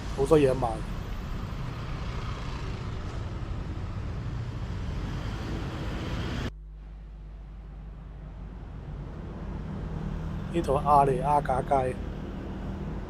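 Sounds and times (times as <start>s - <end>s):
passing vehicles rumble: 0.0s - 6.5s, 7.4s - 13.0s
low hum: 0.8s - 10.6s.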